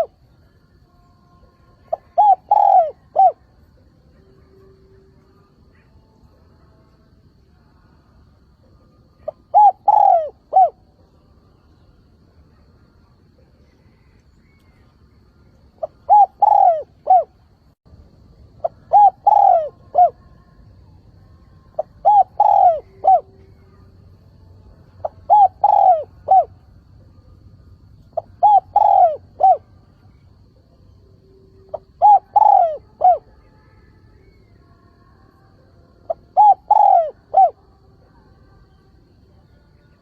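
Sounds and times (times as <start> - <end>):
dove cooing: 0.0 - 0.2, 1.8 - 3.6, 9.2 - 10.9, 15.8 - 17.4, 18.6 - 20.4, 21.7 - 23.8, 25.0 - 26.6, 28.1 - 30.5, 31.6 - 33.5, 36.1 - 37.6.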